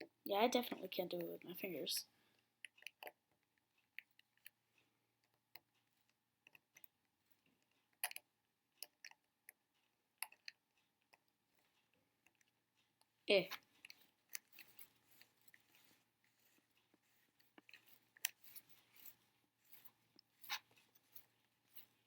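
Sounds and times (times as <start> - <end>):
small plastic clicks and taps: 2.6 - 4.6, 7.7 - 9.6.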